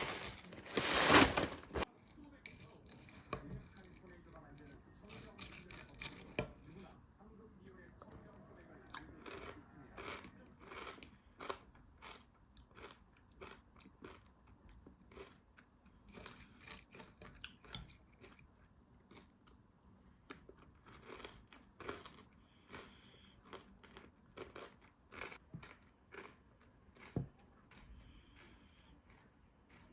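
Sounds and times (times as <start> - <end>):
person chewing and crunching food: 0.0 - 2.0, 8.8 - 19.7, 20.3 - 29.9.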